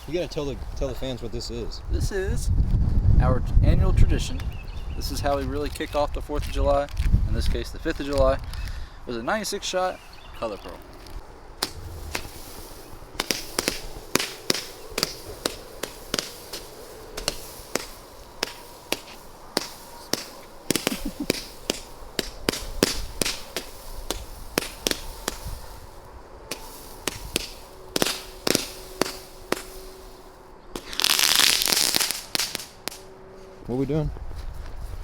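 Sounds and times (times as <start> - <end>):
firework hissing burst: 11.5 - 33.1
firework cake pops: 11.6 - 33.0.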